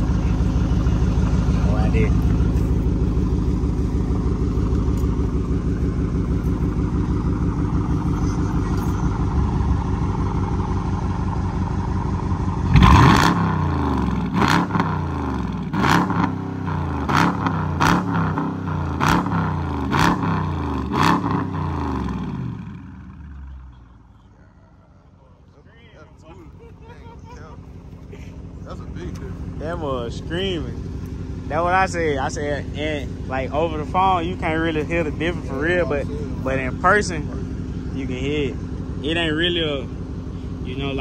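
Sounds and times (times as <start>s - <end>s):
car engine idling deeply: 0.0s - 41.0s
engine revving in quick blips: 12.7s - 22.4s.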